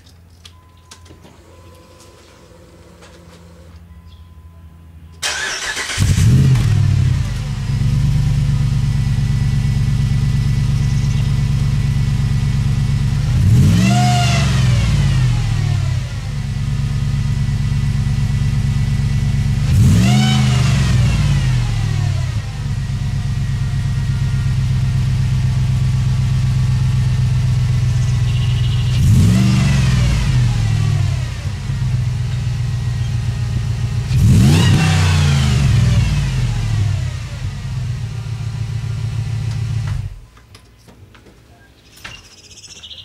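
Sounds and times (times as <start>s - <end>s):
engine idling and revving: 5.1s - 40.3s.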